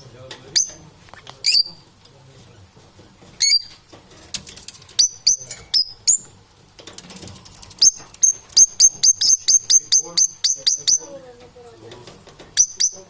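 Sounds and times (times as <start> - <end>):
parrot chirping: 0.0 - 0.8, 1.4 - 1.9, 3.4 - 3.8, 5.0 - 6.4, 7.8 - 11.2, 12.6 - 13.0.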